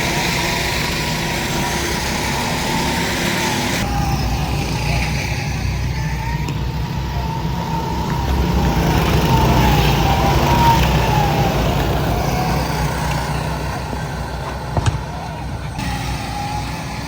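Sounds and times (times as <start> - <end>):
vehicle engine running hard: 0.0 - 17.0
wavering high tone: 15.1 - 17.0.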